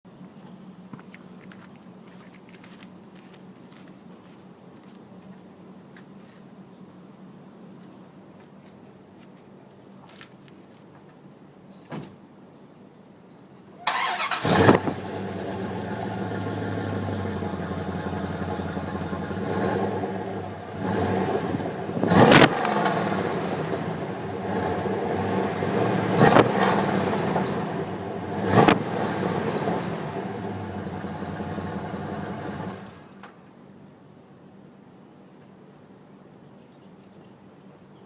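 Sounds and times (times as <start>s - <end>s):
car engine idling and revving: 14.0s - 33.2s.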